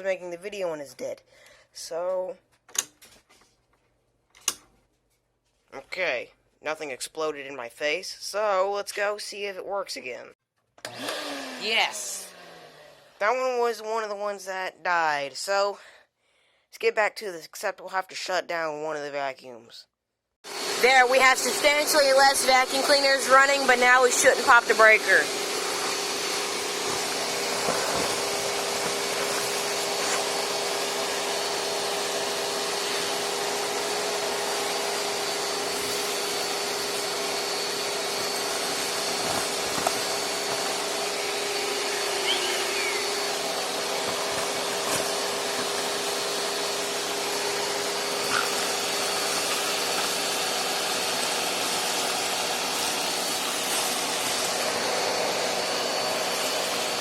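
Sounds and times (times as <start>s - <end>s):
vacuum cleaners running: 10.8s - 14.1s, 20.4s - 57.0s.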